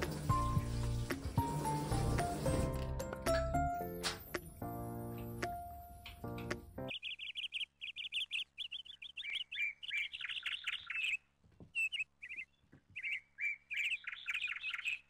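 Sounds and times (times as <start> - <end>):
small birds chirping: 5.1 - 15.0.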